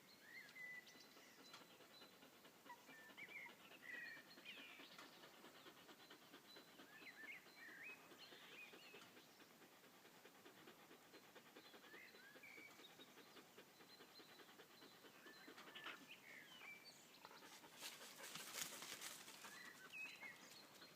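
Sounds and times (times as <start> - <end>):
dog panting: 0.8 - 20.9
bird chirps: 10.6 - 20.9
rustling: 17.6 - 19.6.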